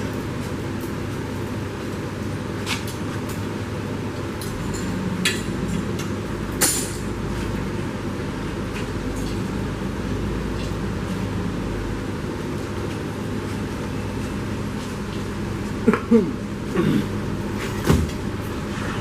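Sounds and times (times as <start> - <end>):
steady low rumble: 3.8 - 10.4.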